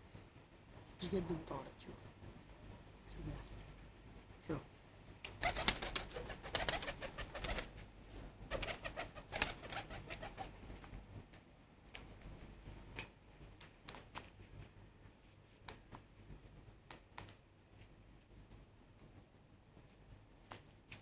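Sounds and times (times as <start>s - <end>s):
sharp clicks and flutters: 5.2s - 7.8s, 8.5s - 10.5s
pigeons cooing: 5.4s - 7.7s, 8.5s - 10.6s.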